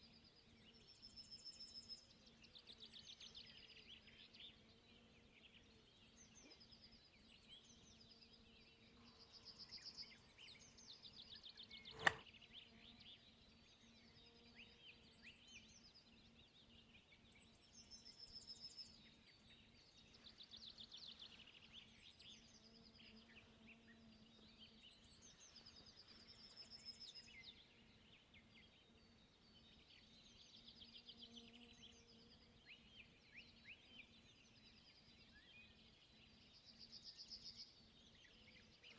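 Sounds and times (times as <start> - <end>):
small birds chirping: 0.1 - 38.9
sharp click: 11.9 - 12.2.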